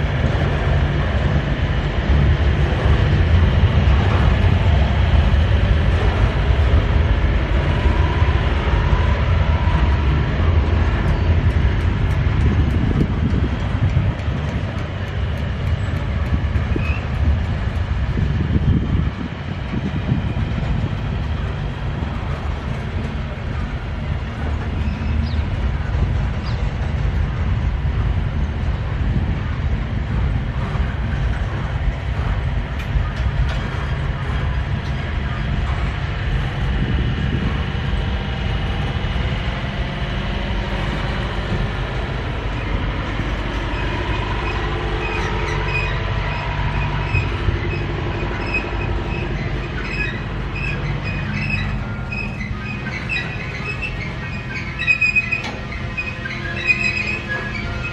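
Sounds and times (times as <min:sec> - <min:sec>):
freight train rumbling: 0:00.0 - 0:57.9
wheel squeals: 0:16.6 - 0:17.3, 0:22.2 - 0:25.6, 0:40.8 - 0:57.9.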